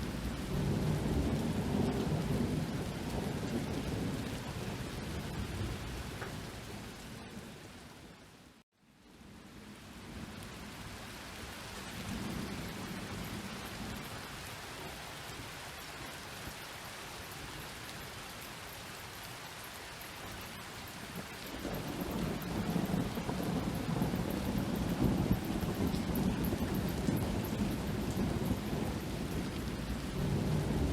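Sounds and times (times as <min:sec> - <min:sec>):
rumbling thunder: 0:00.0 - 0:07.4, 0:21.1 - 0:30.9
rain hiss: 0:00.0 - 0:30.9.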